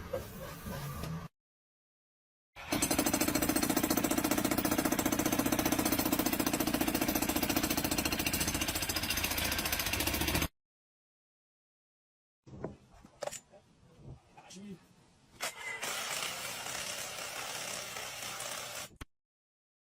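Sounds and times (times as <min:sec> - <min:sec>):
jackhammer pounding: 0:02.7 - 0:10.5, 0:15.8 - 0:18.9.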